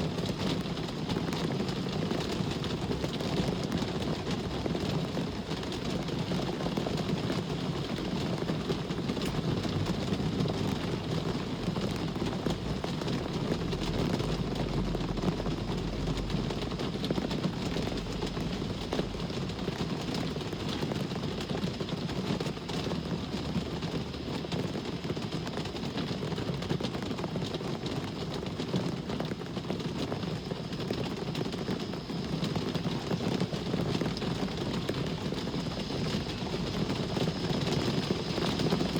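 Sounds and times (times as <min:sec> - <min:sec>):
steady rain: 0:00.0 - 0:38.9
deep low rumble: 0:10.8 - 0:20.4.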